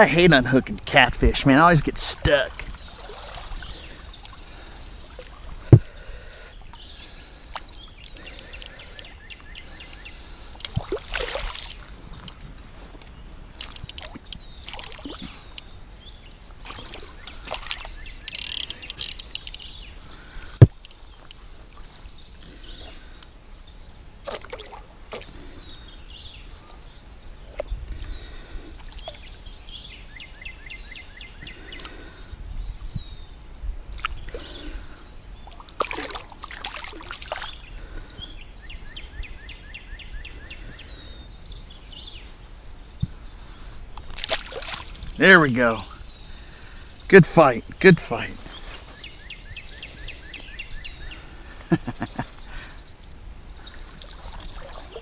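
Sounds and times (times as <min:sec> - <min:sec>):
quick run of ticks: 0:16.8 - 0:19.7
handling clicks and rustles: 0:17.7 - 0:19.8.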